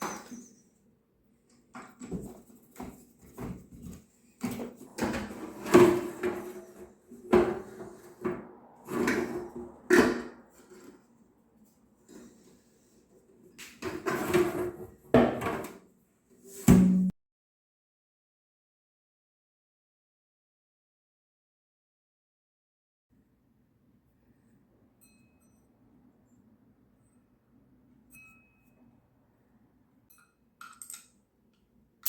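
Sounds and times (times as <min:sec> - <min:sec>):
hard parts clunking and scraping: 0:01.8 - 0:11.0.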